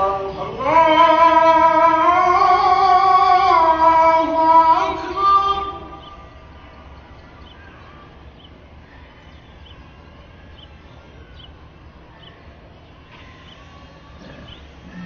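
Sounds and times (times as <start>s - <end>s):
low background noise: 0.0s - 15.0s
small bird chirping: 5.9s - 15.0s.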